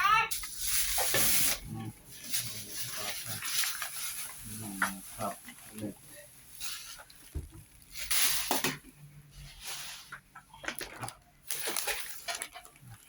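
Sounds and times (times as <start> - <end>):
packaging rustling and crinkling: 0.3 - 13.0.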